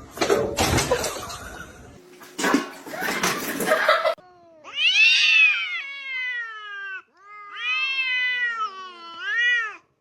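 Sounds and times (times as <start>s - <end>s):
cat meowing: 4.4s - 9.9s.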